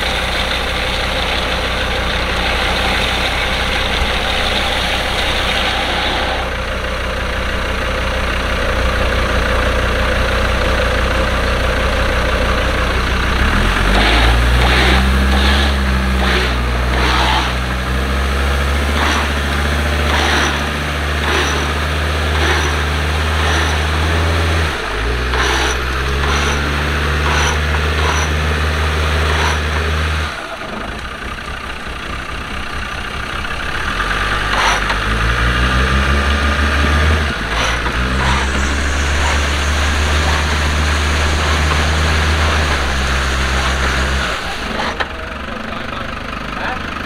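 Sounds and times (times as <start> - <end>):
vehicle engine running: 0.0 - 47.0.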